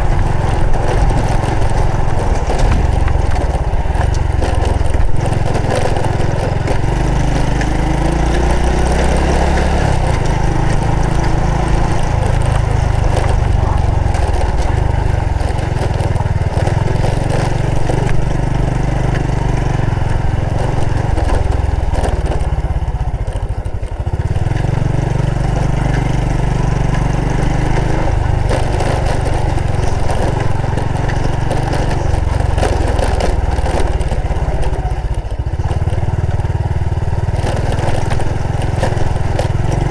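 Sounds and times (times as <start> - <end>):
rushing wind: 0.0 - 25.1
motorcycle engine running: 0.0 - 39.9.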